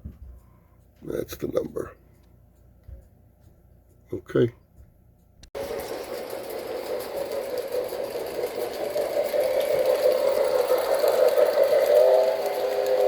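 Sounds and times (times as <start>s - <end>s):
model train motor and wheel whir: 5.6s - 13.0s.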